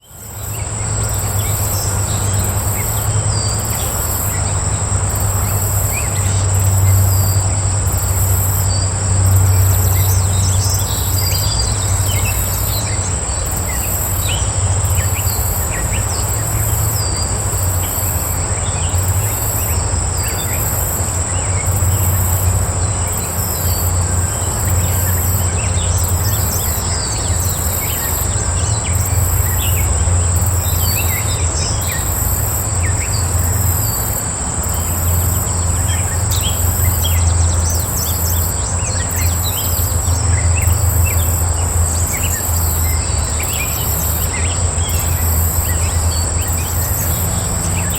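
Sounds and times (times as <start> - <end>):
high pulsing insect chirp: 0.0 - 47.9
insects trilling: 0.0 - 47.9.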